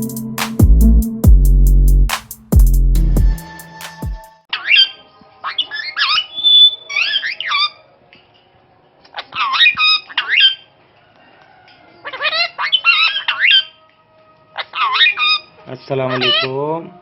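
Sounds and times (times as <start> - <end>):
parakeet squawking: 12.2 - 13.8, 14.6 - 16.6.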